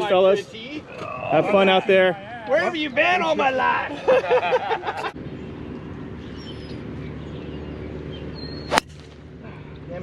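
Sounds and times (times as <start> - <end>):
faint bird chirps: 6.2 - 8.9
golf club striking ball: 8.6 - 9.2.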